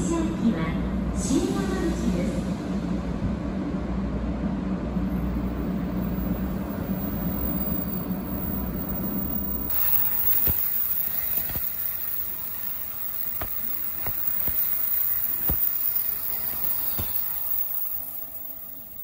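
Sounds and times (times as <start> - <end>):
train rushing past: 0.0 - 19.0
sharp wheel clacks: 7.3 - 19.0.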